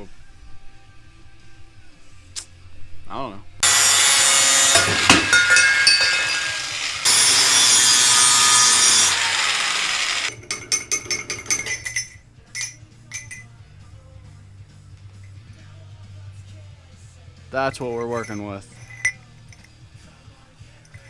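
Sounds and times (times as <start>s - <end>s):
power tool cutting metal pipe: 3.6s - 10.7s.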